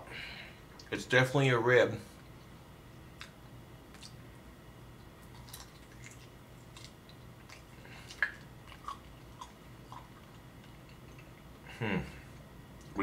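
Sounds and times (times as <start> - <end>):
person chewing: 3.2 - 4.3, 5.0 - 11.7
wet mouth clicks and smacks: 5.2 - 11.3.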